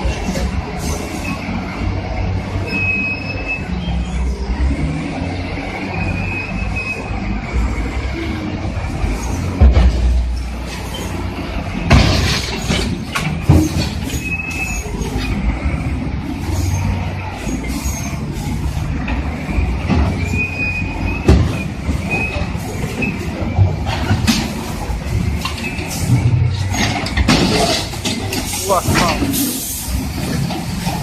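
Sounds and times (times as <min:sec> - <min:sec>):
steel tracks squealing: 0:00.0 - 0:01.9, 0:02.5 - 0:31.0
bulldozer diesel engines running: 0:00.0 - 0:31.0
loud metal knocks: 0:11.8 - 0:14.3.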